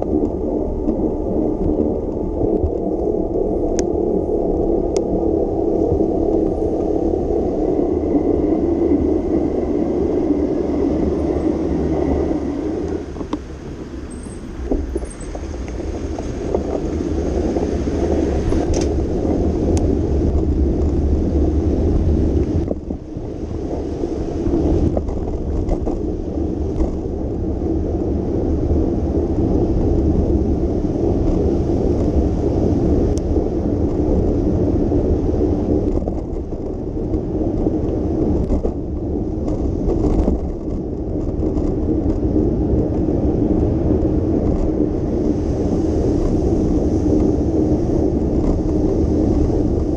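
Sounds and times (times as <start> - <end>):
road noise: 0.0 - 49.9
wind on microphone: 0.0 - 49.9.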